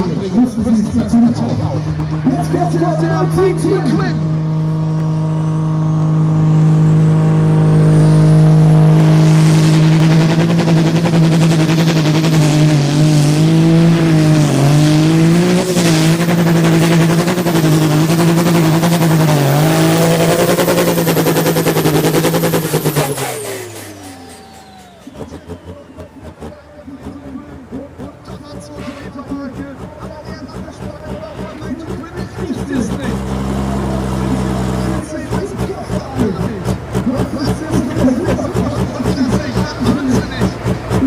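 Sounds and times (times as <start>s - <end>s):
diesel engine at full throttle: 0.0s - 41.0s
high turbo whine: 0.0s - 41.0s.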